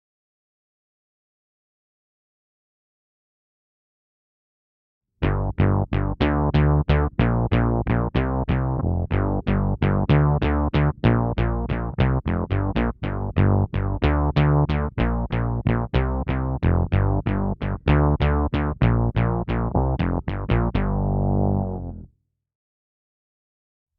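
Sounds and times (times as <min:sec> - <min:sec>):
synth bass notes: 0:05.2 - 0:22.1.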